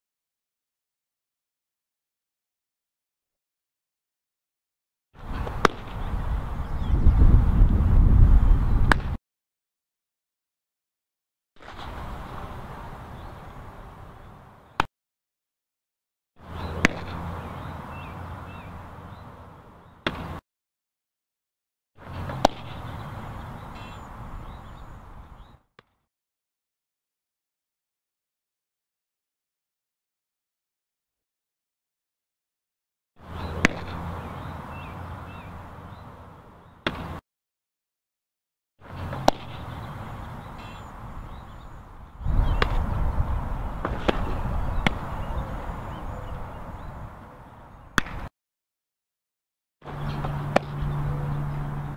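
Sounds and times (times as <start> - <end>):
outdoor background noise: 5.2 - 9.2, 11.6 - 14.9, 16.4 - 20.4, 22.0 - 25.9, 33.2 - 37.2, 38.8 - 48.3, 49.8 - 51.9
ball smacking into glove: 5.4 - 6.0, 22.3 - 22.8, 39.1 - 39.6, 43.8 - 45.0, 48.0 - 48.3
ball smacking into mitt: 5.5 - 6.0, 22.3 - 22.8, 48.0 - 48.3
faint birds chirping: 16.5 - 20.1, 22.7 - 25.6, 39.6 - 43.6, 44.2 - 48.0.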